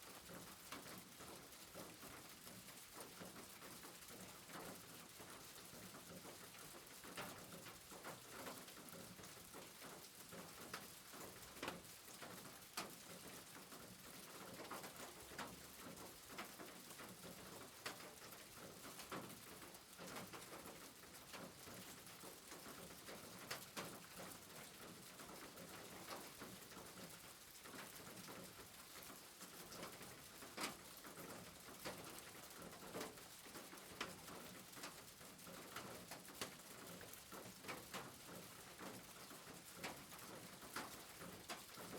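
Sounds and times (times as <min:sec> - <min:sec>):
faint steady rain: 0:00.0 - 0:41.9.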